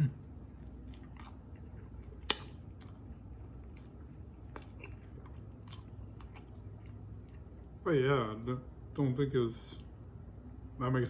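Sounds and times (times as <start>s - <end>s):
man chewing food: 0.0s - 7.8s.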